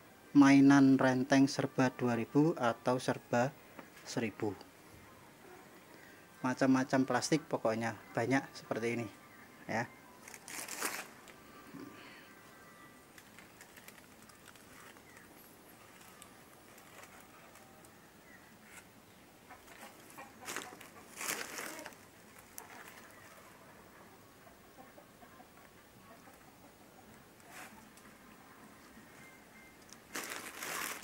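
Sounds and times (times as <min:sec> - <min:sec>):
birds chirping: 0:11.3 - 0:31.0
handling noise rustles: 0:19.6 - 0:23.4, 0:29.9 - 0:31.0.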